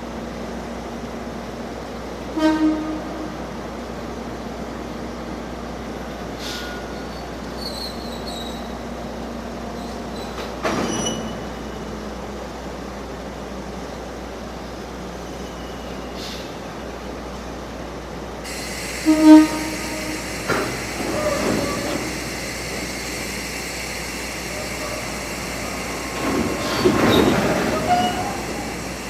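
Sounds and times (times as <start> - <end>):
freight train rolling rumble: 0.0 - 29.0
locomotive horn toot: 2.3 - 3.4, 18.9 - 22.2
train clank: 6.4 - 8.8, 9.8 - 12.0, 18.5 - 22.5, 24.4 - 29.0
wheel squeals: 6.5 - 8.8, 9.8 - 11.6, 15.2 - 16.3, 19.0 - 22.5, 24.4 - 29.0.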